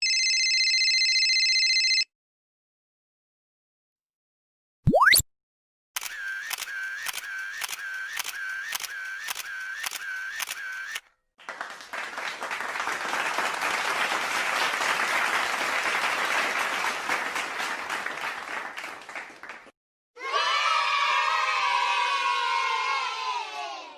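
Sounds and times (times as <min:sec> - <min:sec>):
applause: 0:11.4 - 0:19.8.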